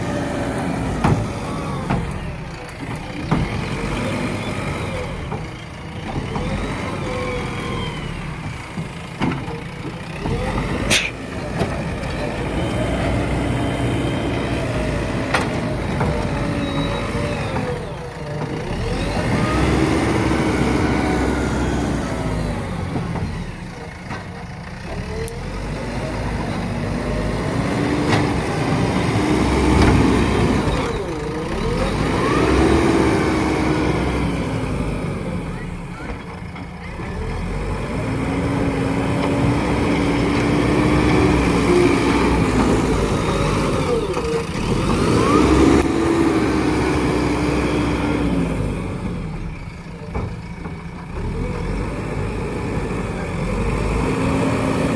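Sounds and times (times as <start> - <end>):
diesel engine revving: 0.0 - 54.9.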